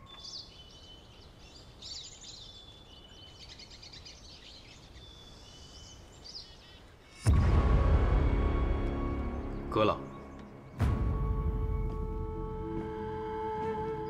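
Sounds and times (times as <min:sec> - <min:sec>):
birds chirping and calling: 0:00.0 - 0:07.3, 0:08.8 - 0:14.0
faint outdoor ambience: 0:00.0 - 0:14.0
whistled bird notes: 0:08.7 - 0:14.0.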